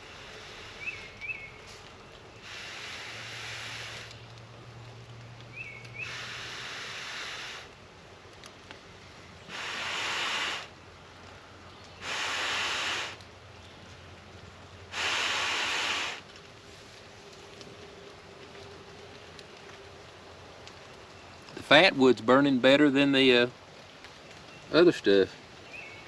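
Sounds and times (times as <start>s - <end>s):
breaths blown onto campfire: 0.0s - 4.5s, 5.6s - 13.4s, 14.8s - 17.5s.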